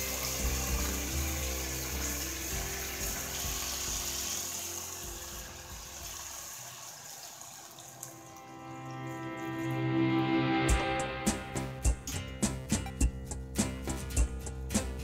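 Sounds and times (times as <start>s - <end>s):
background music: 0.0s - 7.2s, 7.9s - 15.0s
water pouring from a pitcher: 0.0s - 9.5s
food sizzling in a pot: 0.0s - 10.4s.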